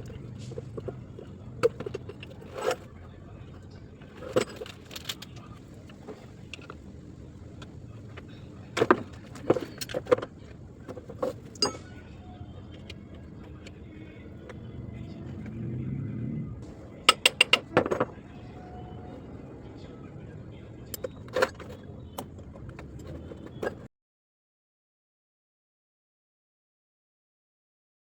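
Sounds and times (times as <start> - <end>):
metal tools clanking: 0.0 - 2.9, 4.0 - 6.8, 8.2 - 10.3, 10.9 - 12.9, 17.0 - 18.2, 20.9 - 23.9
low rumble: 14.8 - 16.8.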